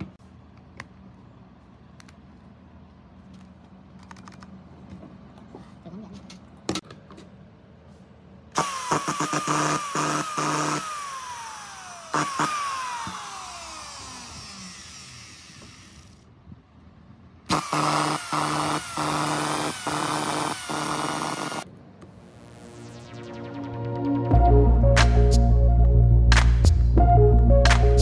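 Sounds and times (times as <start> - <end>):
screw gun motor whining: 8.6 - 16.3, 17.5 - 21.6.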